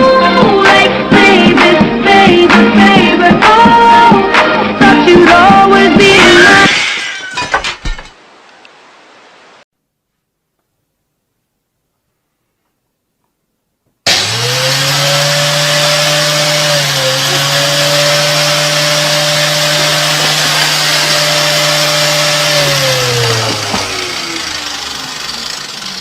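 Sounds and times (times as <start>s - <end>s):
electric motor appliance running: 14.1s - 26.0s.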